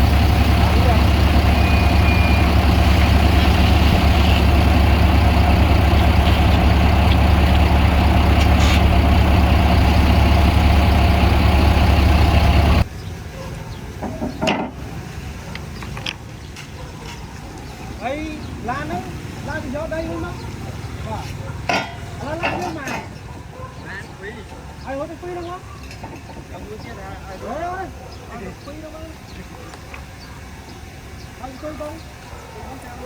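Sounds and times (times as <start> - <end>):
heavy diesel engine running: 0.0 - 13.0, 26.3 - 33.0.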